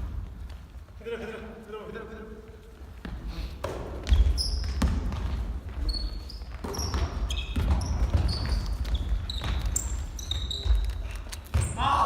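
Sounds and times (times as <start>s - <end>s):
sneakers squeaking: 2.5s - 12.0s
basketball bouncing: 3.0s - 11.9s.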